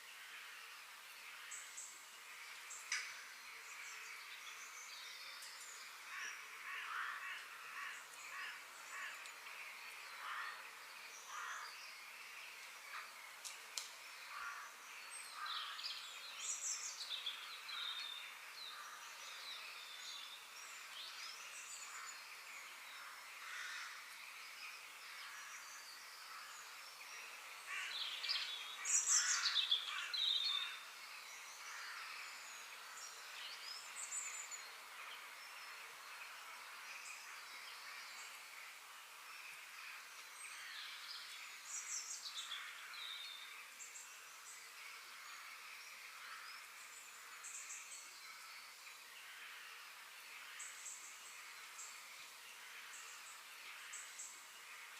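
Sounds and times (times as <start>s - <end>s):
background hiss: 0.0s - 54.9s
birds chirping and calling: 27.6s - 30.9s.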